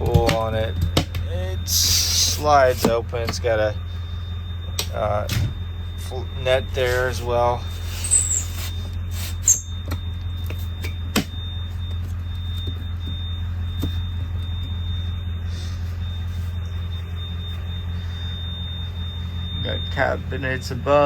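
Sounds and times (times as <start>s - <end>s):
ambulance engine hum: 0.0s - 21.0s
thin high whine: 0.0s - 21.0s.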